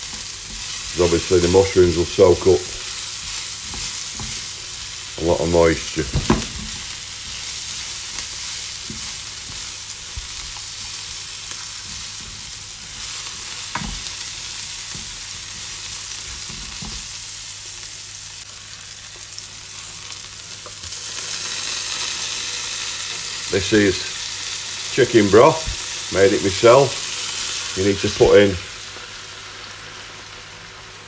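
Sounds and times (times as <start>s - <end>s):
onions sizzling in a frying pan: 0.0s - 31.0s
tongs knocking and scraping: 3.2s - 4.5s.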